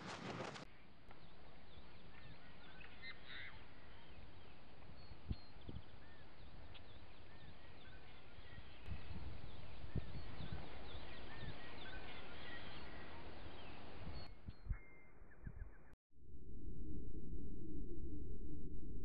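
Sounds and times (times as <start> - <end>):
birds chirping and calling: 1.2 - 15.8.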